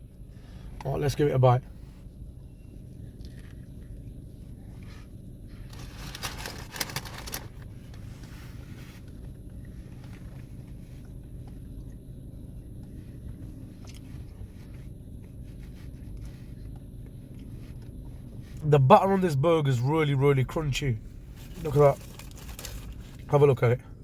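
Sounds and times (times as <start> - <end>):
low rumble: 0.0 - 24.0
batter crackling: 5.6 - 8.1
crunchy chewing: 12.7 - 18.6.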